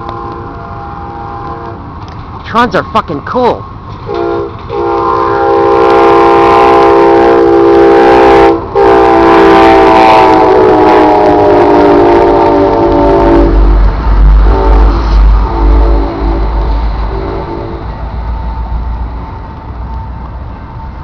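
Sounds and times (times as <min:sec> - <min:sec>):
train air horn chord: 0:00.0 - 0:01.9, 0:04.1 - 0:13.8, 0:14.4 - 0:17.9
low rumble of passing train: 0:00.0 - 0:21.0.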